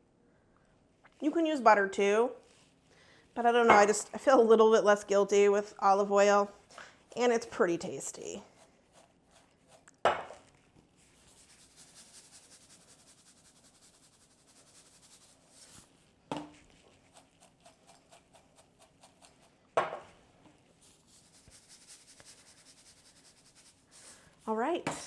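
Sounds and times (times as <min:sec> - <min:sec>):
popcorn rustling in a bowl: 0:10.4 - 0:24.5.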